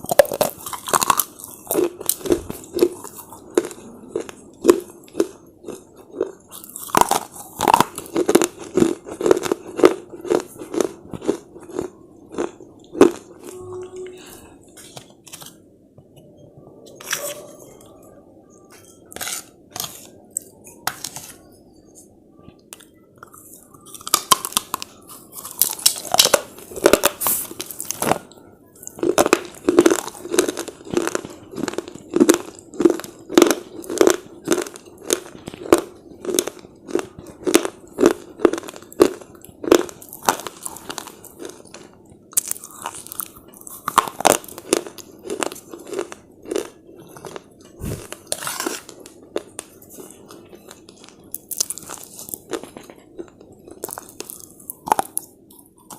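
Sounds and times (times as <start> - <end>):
slate chips crunched by chewing: 0.0 - 13.3, 28.8 - 55.9.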